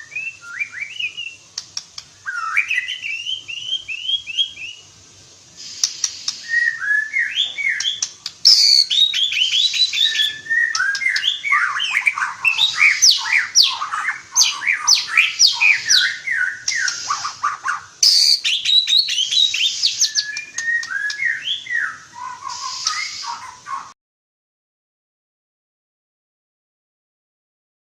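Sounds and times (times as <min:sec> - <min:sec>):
bird singing whistled song: 0:00.0 - 0:04.9, 0:05.6 - 0:24.0
sharp bird clicks: 0:01.5 - 0:02.9, 0:05.6 - 0:06.6, 0:07.6 - 0:21.4, 0:22.2 - 0:23.9.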